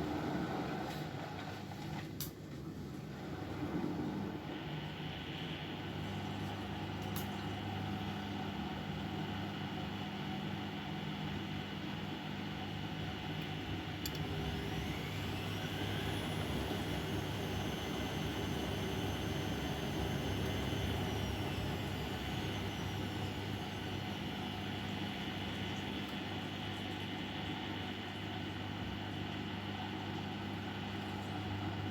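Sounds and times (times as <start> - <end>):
washing machine hum: 0.0 - 31.9
drum motor whining: 14.1 - 26.1.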